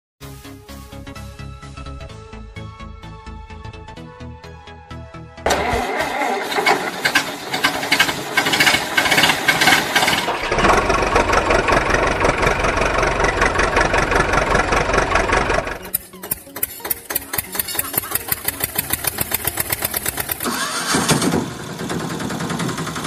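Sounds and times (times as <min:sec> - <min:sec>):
engine starting and running: 0:05.4 - 0:23.0.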